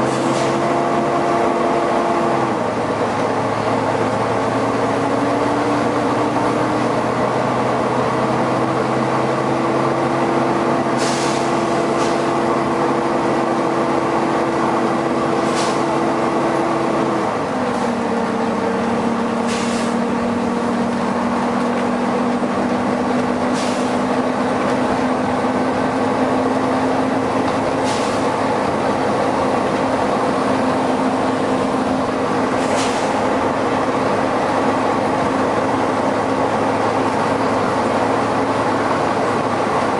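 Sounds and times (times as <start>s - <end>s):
bus cooling fan and engine drone: 0.0s - 39.9s
air brake hisses: 10.9s - 12.3s, 15.4s - 15.9s, 19.4s - 20.0s, 23.5s - 24.0s, 27.8s - 28.4s, 32.6s - 33.2s.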